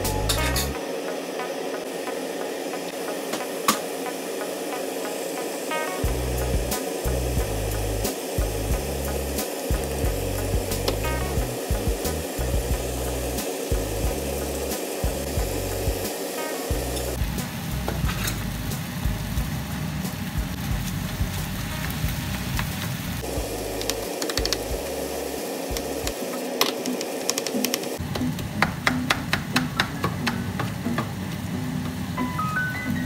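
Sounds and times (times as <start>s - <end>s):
meat sizzling in a frying pan: 0.1s - 28.0s
chopper tapping and scraping pan: 23.8s - 24.8s.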